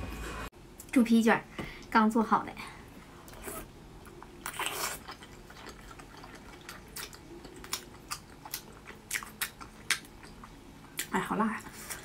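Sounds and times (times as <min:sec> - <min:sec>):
wet biting and chewing: 0:03.3 - 0:11.2.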